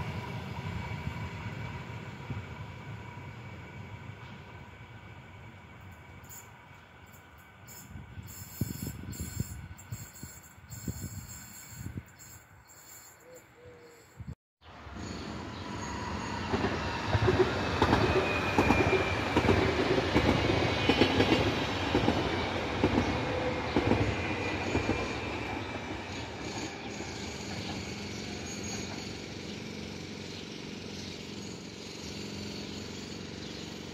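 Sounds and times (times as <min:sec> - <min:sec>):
wheel squeal: 0:07.7 - 0:13.3, 0:24.0 - 0:29.8.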